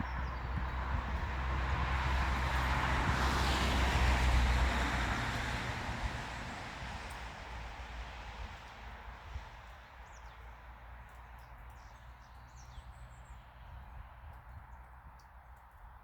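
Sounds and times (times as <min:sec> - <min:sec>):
vehicle passing by: 0:00.0 - 0:07.3.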